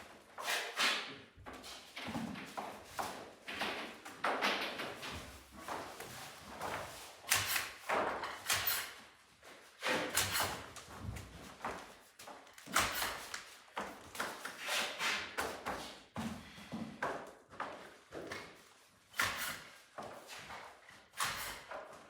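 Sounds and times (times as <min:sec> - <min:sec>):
knocks and thuds of building work: 0:01.4 - 0:08.9, 0:09.8 - 0:14.4, 0:19.2 - 0:22.0.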